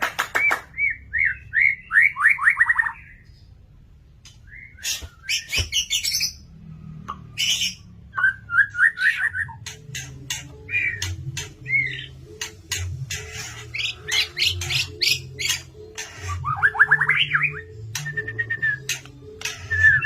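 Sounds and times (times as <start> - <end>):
harsh scratchy bird calls: 4.2 - 6.5, 7.3 - 20.0
bird singing whistled notes: 13.8 - 20.0.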